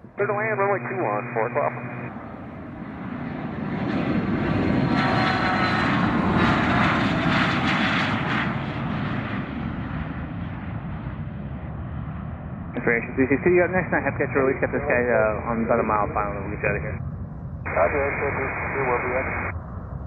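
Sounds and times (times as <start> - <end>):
faint high whine: 0.0 - 2.1, 12.8 - 19.6
jet engines passing: 0.0 - 17.0, 17.7 - 20.0.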